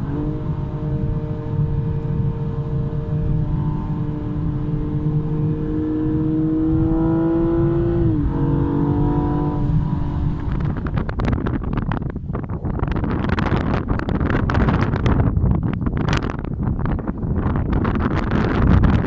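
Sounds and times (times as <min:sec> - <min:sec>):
car engine accelerating: 0:00.0 - 0:11.5
gusty wind noise: 0:00.0 - 0:19.0.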